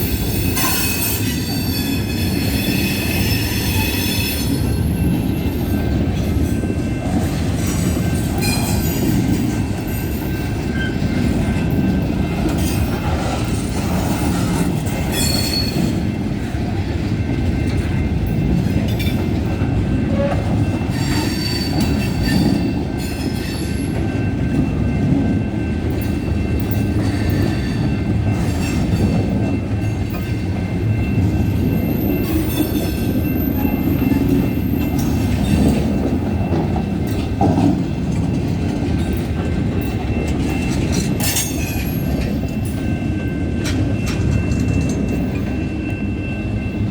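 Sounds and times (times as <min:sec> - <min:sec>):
freight train cars rumbling: 0:00.0 - 0:46.9
train wheels squealing: 0:00.0 - 0:46.9.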